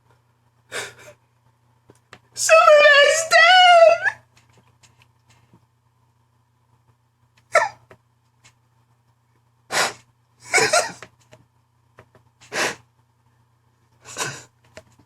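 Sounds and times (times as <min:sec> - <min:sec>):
man sobbing: 0:02.4 - 0:04.2, 0:10.4 - 0:11.0, 0:14.0 - 0:14.5.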